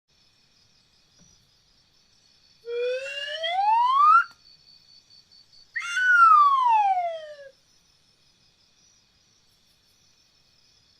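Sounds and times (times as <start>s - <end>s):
bird whistling siren wail: 2.7s - 4.4s, 5.8s - 7.5s.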